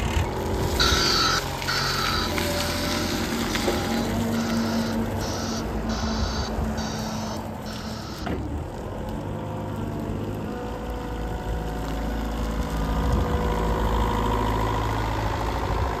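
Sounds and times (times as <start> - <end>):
diesel forklift engine running: 0.0 - 16.0
high whine: 0.6 - 8.5
high beeping: 0.8 - 3.0, 4.3 - 8.3.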